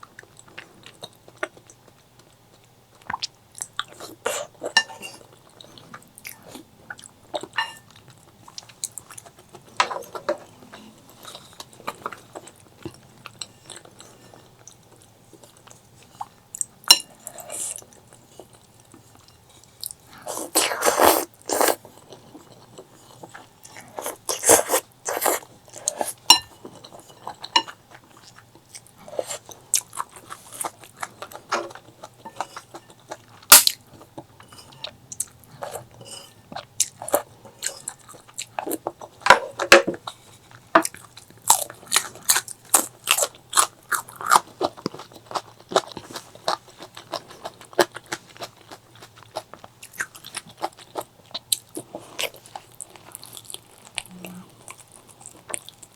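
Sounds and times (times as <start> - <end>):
person crunching and chewing food: 0.0 - 55.9.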